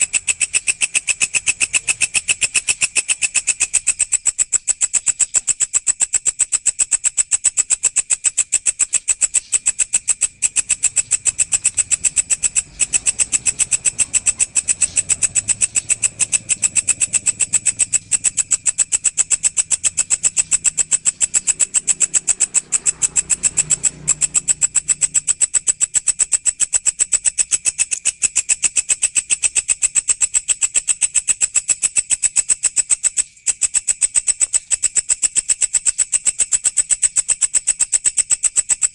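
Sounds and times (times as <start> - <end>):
katydid stridulating: 0.0 - 38.9.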